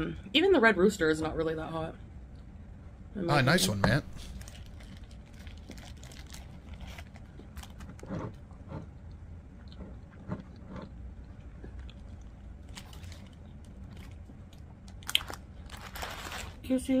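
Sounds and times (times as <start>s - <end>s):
person biting and chewing: 14.9s - 15.4s.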